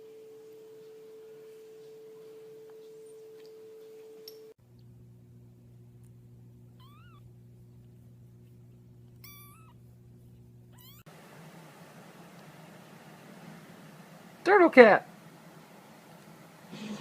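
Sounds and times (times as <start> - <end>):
steady low hum: 0.0 - 17.0
cat meowing: 6.8 - 7.2, 9.2 - 9.8, 10.8 - 11.1.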